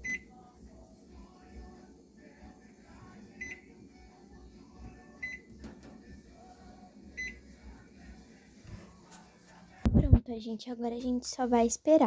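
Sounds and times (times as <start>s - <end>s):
microwave keypad beeping: 0.0s - 0.4s, 3.3s - 3.7s, 5.2s - 5.6s, 7.1s - 7.4s.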